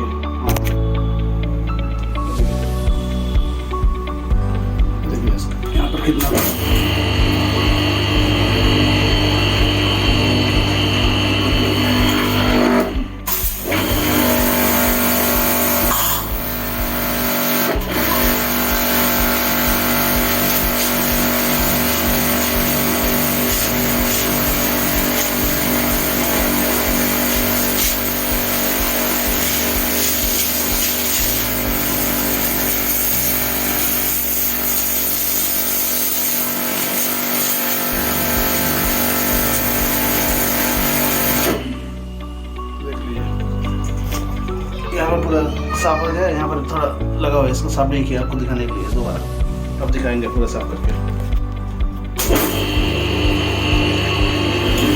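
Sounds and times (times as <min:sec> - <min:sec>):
pressure washer motor hum: 0:05.8 - 0:41.9, 0:52.2 - 0:54.9
pressure washer spraying water: 0:06.2 - 0:41.8, 0:52.2 - 0:54.9.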